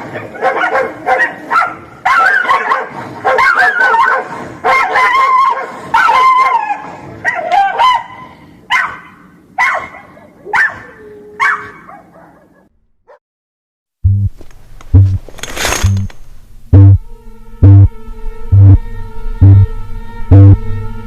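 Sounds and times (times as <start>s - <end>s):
dog barking and whining: 0.0s - 13.2s
dog yelping: 0.1s - 13.2s.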